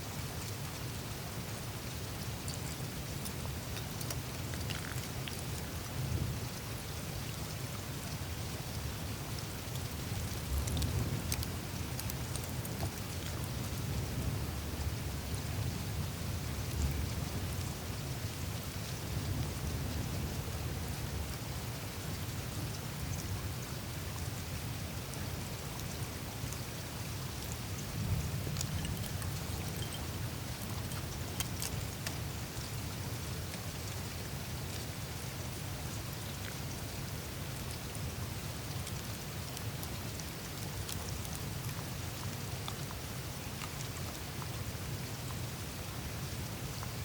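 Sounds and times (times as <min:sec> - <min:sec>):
low rumble of flowing water: 0:00.0 - 0:47.0
meltwater trickling: 0:00.5 - 0:15.4, 0:24.5 - 0:45.4
ice ticking and crackling: 0:02.2 - 0:06.1, 0:08.1 - 0:14.0, 0:25.1 - 0:44.5
ice crackling: 0:27.7 - 0:32.3.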